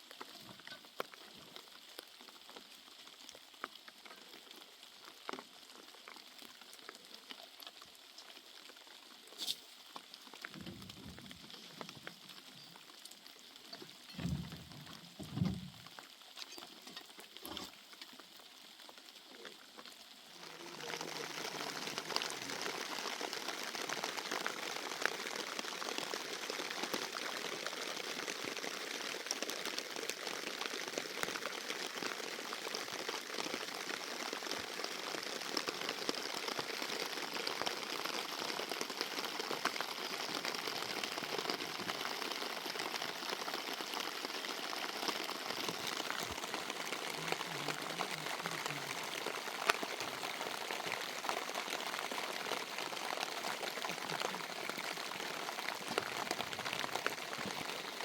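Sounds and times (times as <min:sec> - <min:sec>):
steady rain hiss: 0:00.0 - 0:58.0
sharp raindrop hits: 0:09.4 - 0:12.9, 0:13.6 - 0:17.8.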